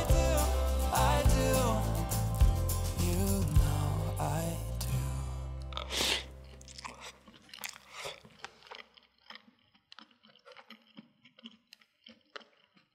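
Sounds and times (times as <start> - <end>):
background music: 0.0 - 6.6
person chewing food: 5.6 - 12.9.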